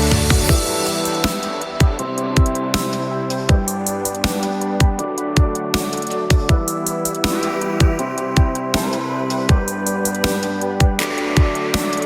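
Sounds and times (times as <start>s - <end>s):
steady kick drum: 0.0s - 0.8s, 3.5s - 3.8s, 6.3s - 6.9s, 7.5s - 8.7s
electronic music with held chords: 0.0s - 12.0s.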